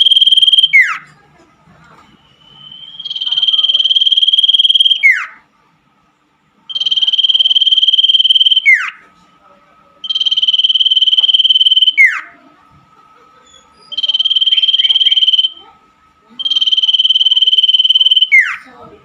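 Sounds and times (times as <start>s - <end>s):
bird trilled whistle song: 0.0s - 1.0s, 2.4s - 5.4s, 6.7s - 9.0s, 13.9s - 15.6s, 16.4s - 18.6s
faint steady high tone: 0.0s - 1.2s, 2.0s - 5.4s, 6.7s - 12.6s, 13.6s - 19.0s.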